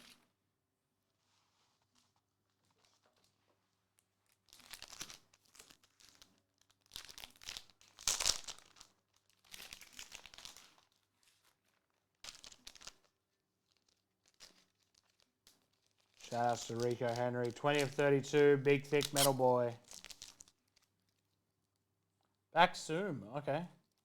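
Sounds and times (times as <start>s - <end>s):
plastic wrapping crinkling: 4.0s - 21.9s.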